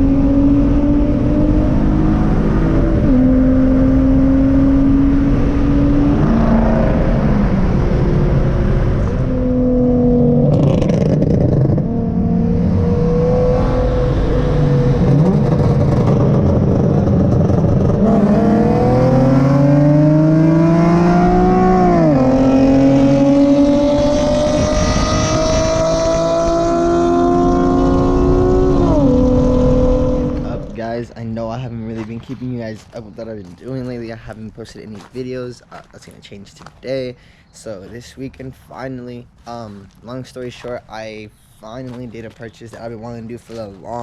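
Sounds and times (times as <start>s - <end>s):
car engine accelerating: 0.0s - 31.1s.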